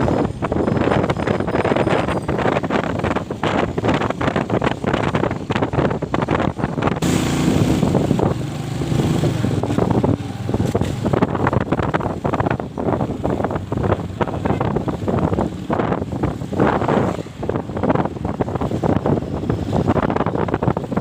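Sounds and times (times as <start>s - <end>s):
wind buffeting microphone: 0.0s - 21.0s
motorcycle engine running: 6.4s - 21.0s.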